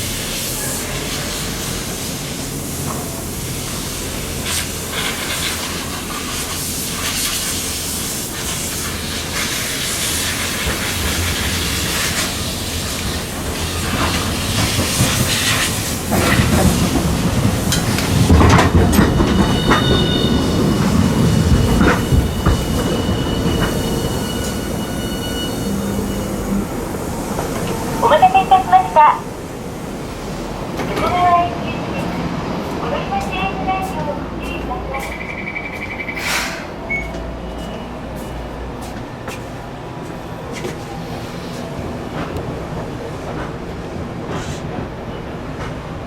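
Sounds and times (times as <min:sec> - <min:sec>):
tram rumbling on rails: 0:00.0 - 0:46.0
wheels clacking over track: 0:13.4 - 0:23.8
high wheel squeal: 0:18.9 - 0:28.0, 0:34.5 - 0:38.0.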